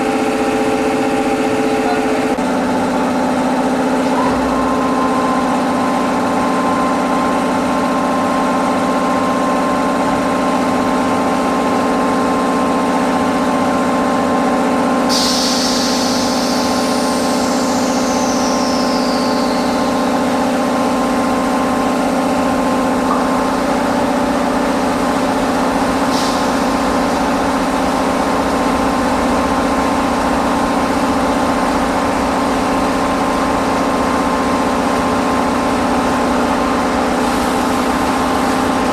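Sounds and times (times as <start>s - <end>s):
electric machinery hum: 0.0s - 38.9s
sudden hiss: 15.1s - 19.5s.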